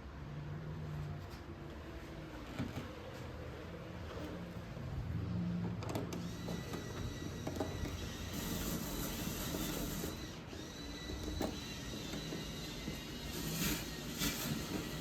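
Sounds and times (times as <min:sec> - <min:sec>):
motorized mechanism whining: 0:05.7 - 0:15.0.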